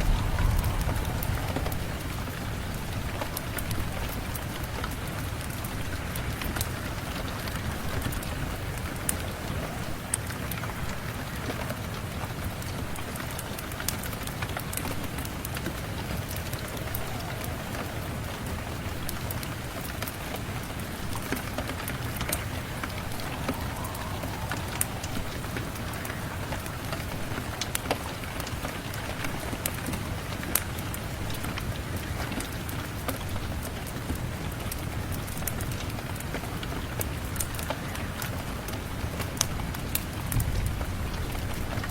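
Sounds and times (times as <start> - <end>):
low rumble: 0.0 - 5.0, 22.1 - 27.6
wood fire crackling: 0.0 - 6.5, 16.1 - 29.0
rain hiss: 0.0 - 41.9.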